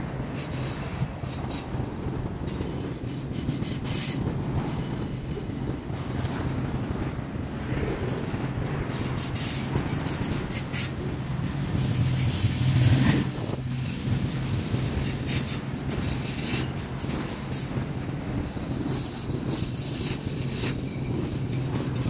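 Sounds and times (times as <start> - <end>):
train wheels clicking over rails: 0.0 - 22.0.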